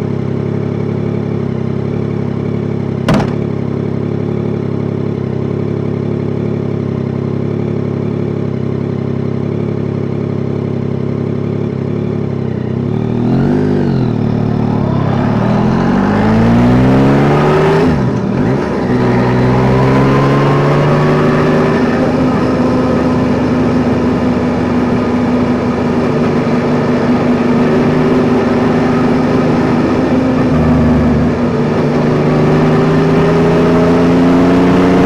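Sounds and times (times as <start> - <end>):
motorcycle engine revving: 3.1 - 3.9, 11.4 - 35.0.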